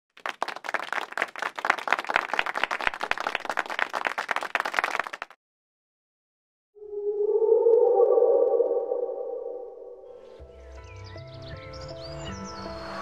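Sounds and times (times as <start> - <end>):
crowd applauding: 0.1 - 5.4.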